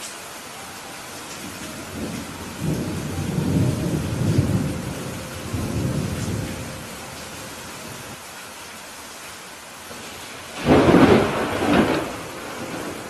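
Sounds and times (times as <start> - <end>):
heavy rain: 0.0 - 13.0
rolling thunder rumble: 1.4 - 8.2, 10.0 - 13.0.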